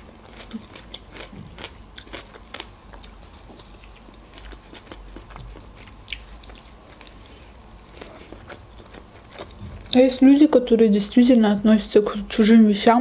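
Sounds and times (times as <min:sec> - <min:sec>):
person chewing and biting: 0:00.2 - 0:10.0.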